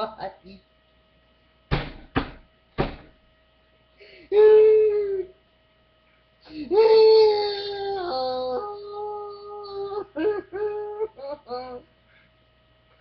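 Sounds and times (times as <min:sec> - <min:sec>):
electrical hum: 0:00.0 - 0:13.0
thumps: 0:01.7 - 0:03.2
man wailing: 0:04.3 - 0:05.3, 0:06.5 - 0:11.8.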